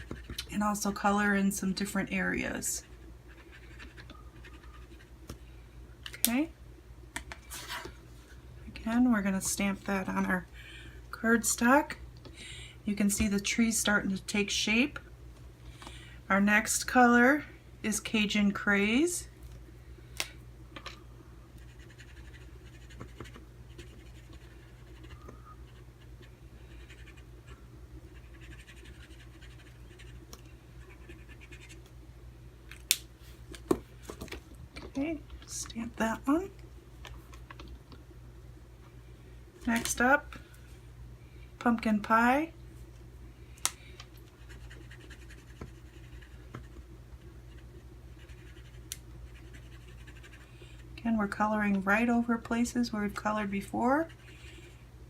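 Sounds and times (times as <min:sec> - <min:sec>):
marker scratching: 0:21.6 - 0:25.8, 0:26.7 - 0:27.2, 0:28.1 - 0:30.2, 0:30.8 - 0:31.8, 0:44.4 - 0:46.8, 0:47.5 - 0:50.4.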